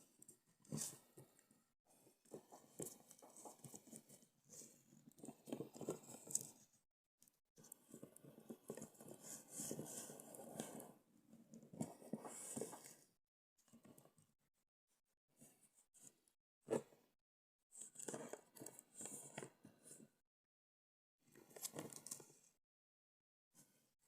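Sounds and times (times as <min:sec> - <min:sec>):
rustling and scraping handling noise: 0:00.0 - 0:06.8, 0:07.6 - 0:13.1, 0:17.8 - 0:20.1, 0:21.3 - 0:22.5.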